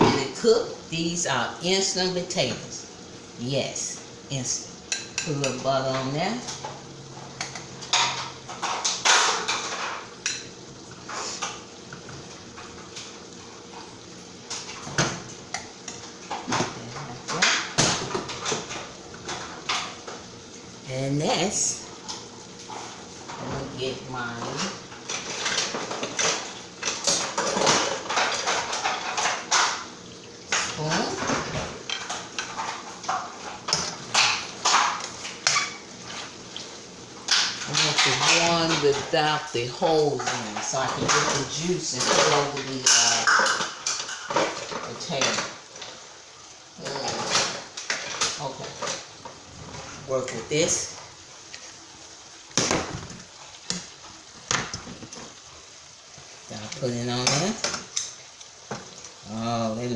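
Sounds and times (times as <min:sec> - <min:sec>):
kitchen utensils clattering: 0:00.0 - 0:02.8, 0:04.3 - 0:20.3, 0:21.0 - 0:46.1, 0:46.8 - 0:51.7, 0:52.4 - 0:55.4, 0:56.2 - 0:59.2
dishes and utensils clinking: 0:07.4 - 0:12.0, 0:24.5 - 0:29.9, 0:37.3 - 0:39.4, 0:40.2 - 0:45.9.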